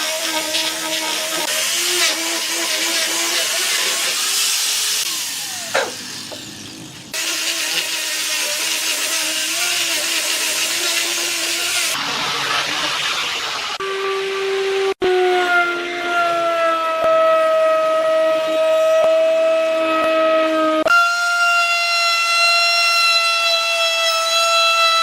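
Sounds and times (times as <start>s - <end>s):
electric power tool whining: 0.0s - 12.9s.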